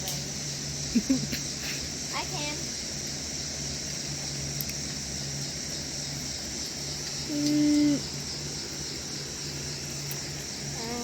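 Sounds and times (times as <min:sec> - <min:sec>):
insect chorus chirring: 0:00.0 - 0:11.0
person humming: 0:07.3 - 0:08.1.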